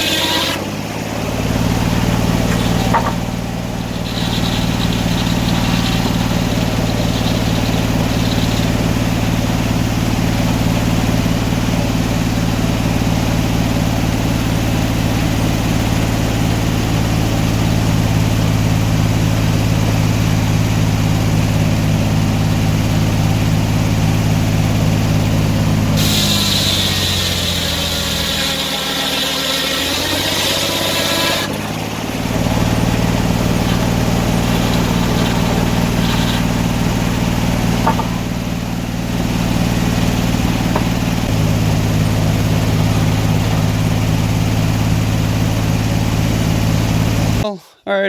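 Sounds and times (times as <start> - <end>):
sawmill engine running: 0.0 - 47.5.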